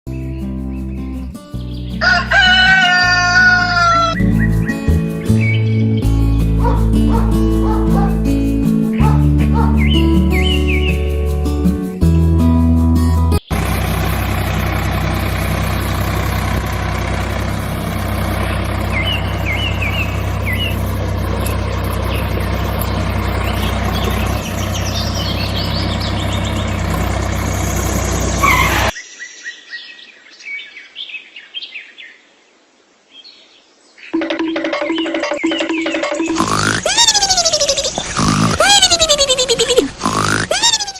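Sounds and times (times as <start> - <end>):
birds chirping: 0.8 - 11.1, 13.4 - 30.0, 34.0 - 40.9
loud hum with low drone: 13.5 - 28.9.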